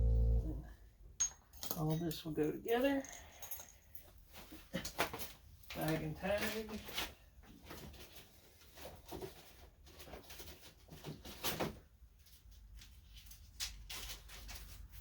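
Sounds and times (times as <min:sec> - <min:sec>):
plastic bag rustling: 0:04.2 - 0:15.0.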